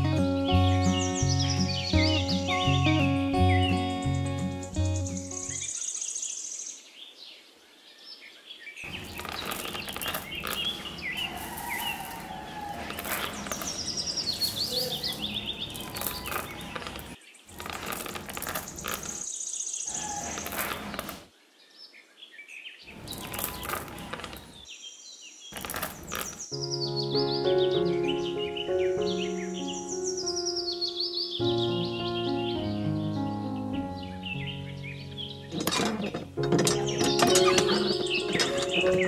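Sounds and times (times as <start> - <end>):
bird chirps: 0.2 - 7.1, 7.9 - 17.6, 18.6 - 35.6
pebbles clattering on concrete: 8.9 - 19.3, 19.9 - 21.2, 23.0 - 24.6, 25.6 - 26.5, 35.5 - 39.0.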